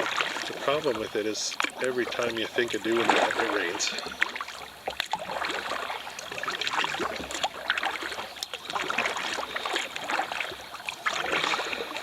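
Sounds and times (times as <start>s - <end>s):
paddle splashing water: 0.0s - 12.0s.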